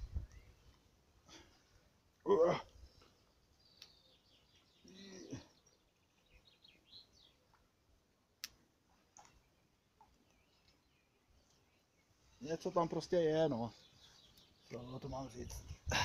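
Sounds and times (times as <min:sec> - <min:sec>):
faint bird chirps: 0:00.0 - 0:00.9, 0:02.8 - 0:07.6.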